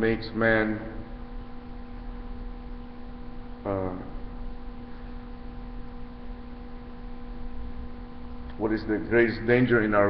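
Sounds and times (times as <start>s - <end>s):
steady electrical hum: 0.0s - 10.0s.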